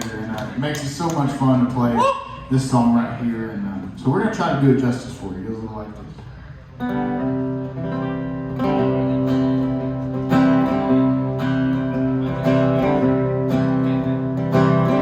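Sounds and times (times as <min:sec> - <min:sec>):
acoustic guitar strumming: 0:06.8 - 0:15.0.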